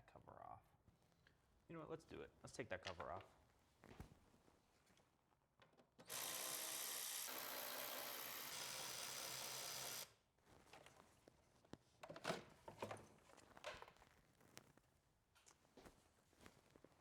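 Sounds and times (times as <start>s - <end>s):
power tool motor running: 6.1s - 10.1s.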